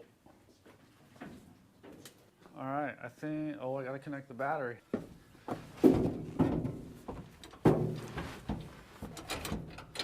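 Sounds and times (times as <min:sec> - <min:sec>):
sharp knocks and clunks: 0:05.0 - 0:10.0.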